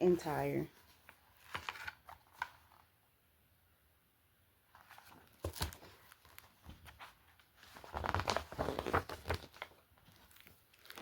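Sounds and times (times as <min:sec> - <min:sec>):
book pages rustling: 0:00.7 - 0:02.9, 0:04.7 - 0:11.0.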